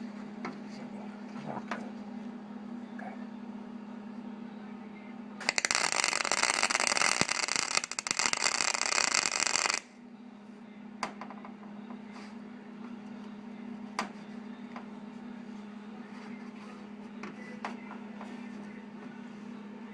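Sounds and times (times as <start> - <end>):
sharp clicks: 5.5 - 9.8
welder arc crackling: 5.5 - 9.9.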